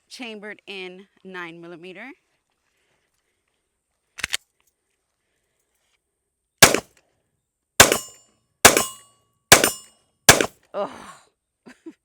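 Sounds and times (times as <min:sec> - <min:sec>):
pistol shot: 0:06.6 - 0:06.9, 0:07.8 - 0:08.1, 0:08.7 - 0:10.5.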